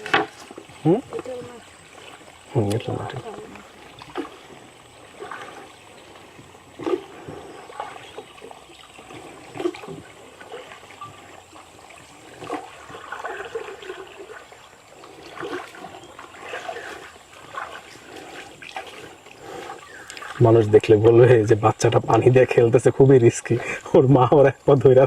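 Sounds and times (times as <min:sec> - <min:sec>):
water splashing and trickling: 0:00.0 - 0:25.0.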